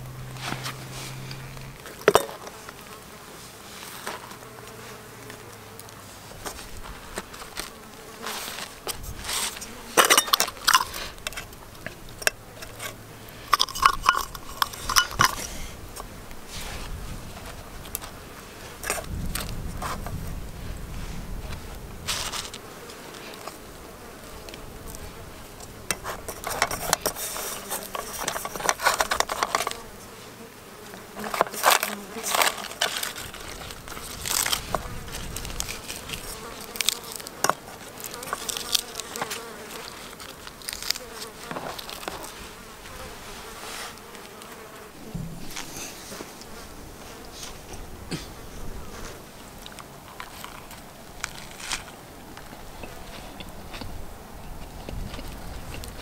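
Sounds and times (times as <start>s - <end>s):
insect buzzing: 0.0s - 53.2s
objects clinking and rustling: 9.3s - 15.6s, 25.9s - 29.8s, 31.2s - 42.3s.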